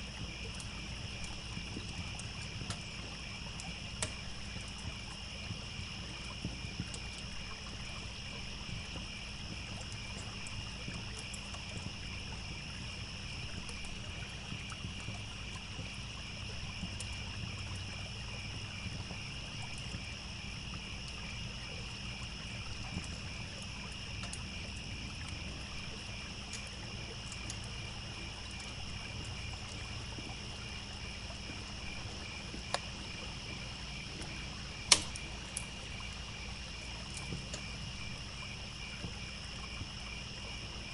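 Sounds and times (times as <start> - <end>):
campfire crackling: 0.0 - 39.4
crickets chirping: 0.0 - 40.9
trickling stream: 0.0 - 40.9
loud campfire pop: 4.0 - 4.3, 34.8 - 35.7.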